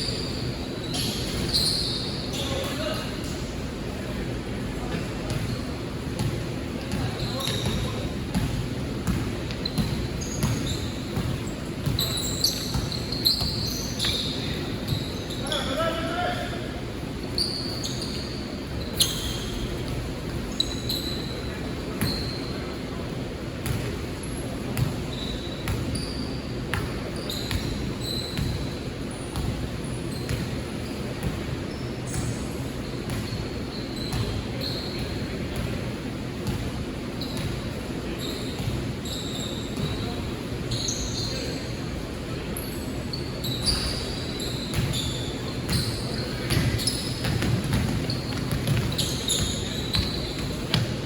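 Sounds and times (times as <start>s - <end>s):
sneakers squeaking on floor: 0.0s - 3.6s, 4.8s - 23.0s, 23.6s - 51.0s
murmur of voices: 0.0s - 51.0s
basketball bouncing: 46.5s - 51.0s.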